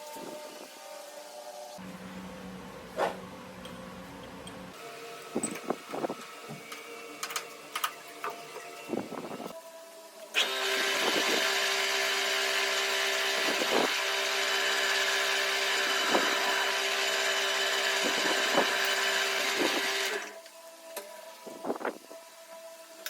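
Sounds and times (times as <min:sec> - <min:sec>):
power tool hissing and humming: 0:10.2 - 0:22.0.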